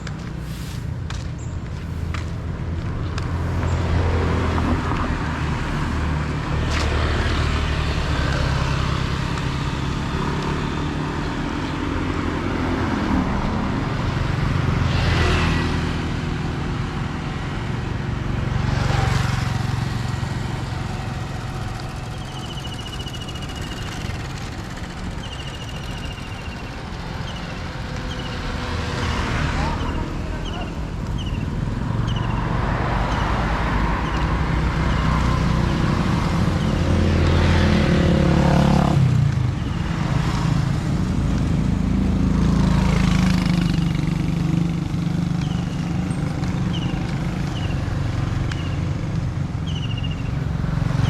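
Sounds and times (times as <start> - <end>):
car and motorcycle engines passing: 0.0 - 51.0.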